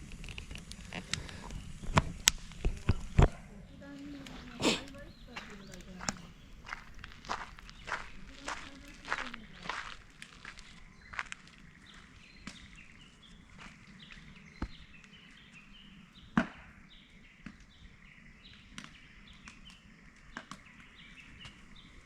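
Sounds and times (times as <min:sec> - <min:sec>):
sharp clicks and snaps: 0:00.0 - 0:03.4.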